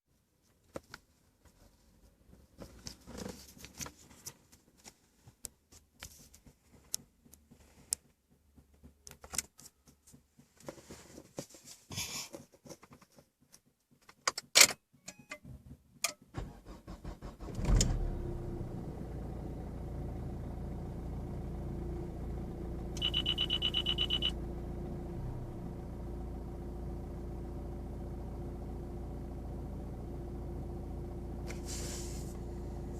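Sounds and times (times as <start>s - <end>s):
diesel engine starting and idling: 16.1s - 32.9s
rapid electronic beeping: 23.0s - 24.3s.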